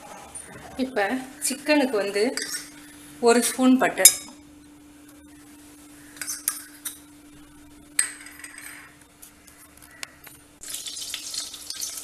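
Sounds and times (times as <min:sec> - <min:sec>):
frying sizzle: 0:10.6 - 0:12.0.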